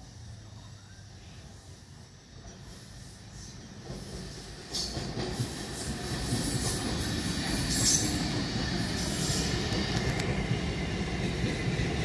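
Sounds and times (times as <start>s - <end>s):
high hiss: 0.0s - 12.0s
train wheels rumbling on rails: 0.0s - 12.0s.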